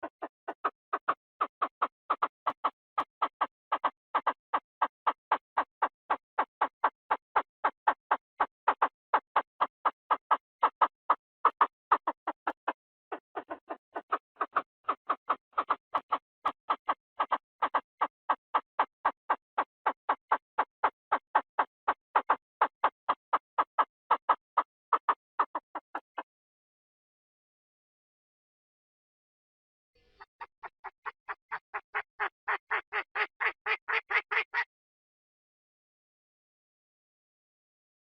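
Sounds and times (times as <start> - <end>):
quail calling: 0.0 - 4.4, 7.6 - 26.2, 30.0 - 34.7.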